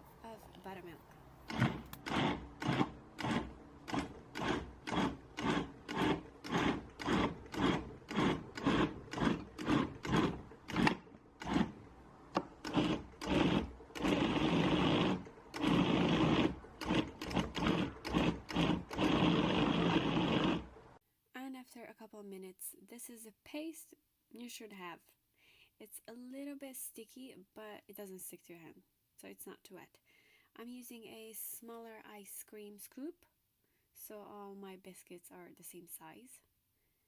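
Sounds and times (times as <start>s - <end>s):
blender motor pulsing: 1.4s - 20.9s.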